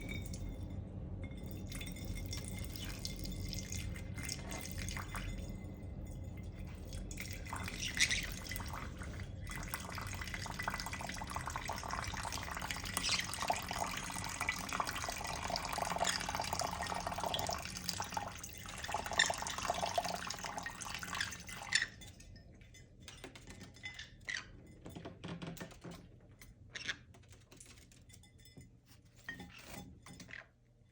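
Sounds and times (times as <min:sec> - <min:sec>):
water dripping: 0:00.0 - 0:00.5, 0:01.3 - 0:24.4
water running: 0:01.3 - 0:24.0.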